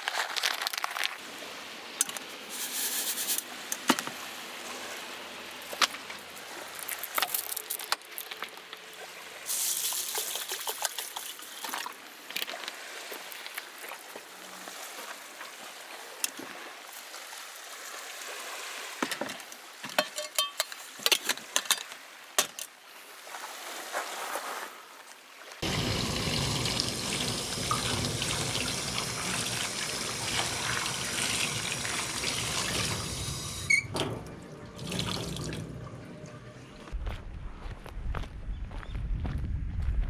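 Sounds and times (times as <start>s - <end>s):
water running and splashing: 4.3s - 19.1s, 25.6s - 33.7s.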